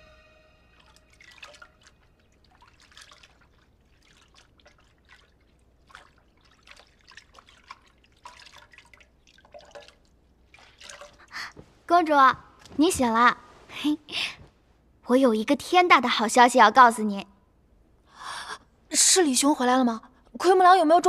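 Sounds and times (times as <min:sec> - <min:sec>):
faint water dripping: 0:00.6 - 0:13.0.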